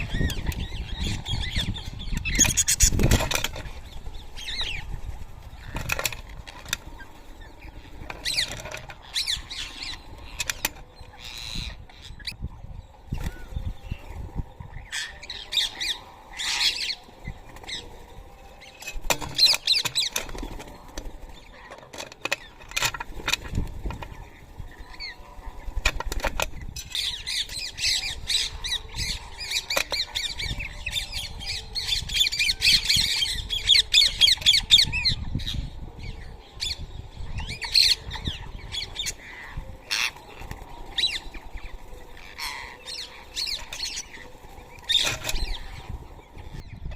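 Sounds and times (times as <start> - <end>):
wingbeats: 0.0 - 46.9
parakeets squawking: 13.2 - 18.8, 26.8 - 46.4.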